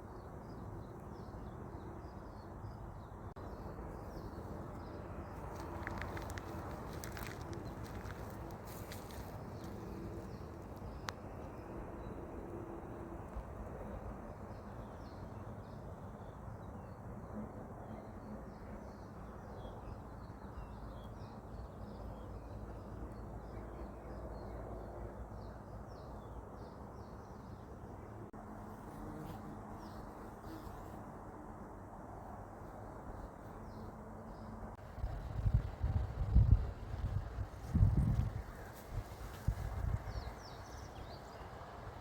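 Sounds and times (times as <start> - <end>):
low background rumble: 34.8 - 38.7.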